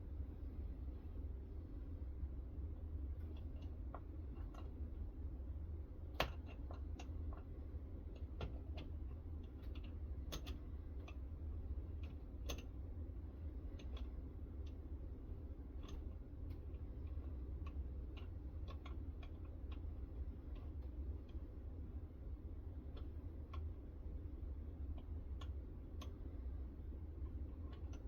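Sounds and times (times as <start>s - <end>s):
steady low hum: 0.0s - 28.0s
light clicks and taps: 3.2s - 5.0s, 6.1s - 14.8s, 15.4s - 21.6s, 22.7s - 28.0s.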